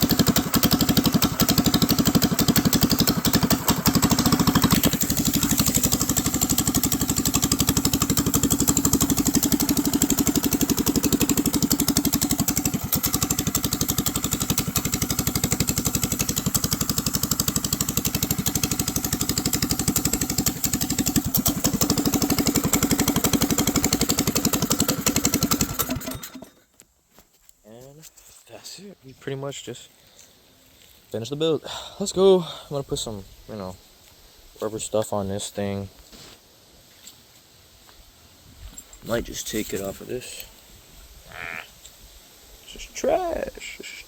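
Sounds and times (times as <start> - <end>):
small gas engine idling: 0.0 - 26.7.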